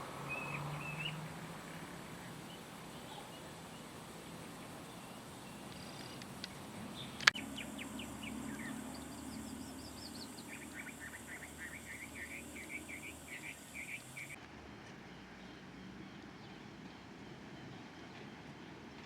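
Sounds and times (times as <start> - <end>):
small birds chirping: 0.2 - 14.4
sharp click: 7.2 - 7.4.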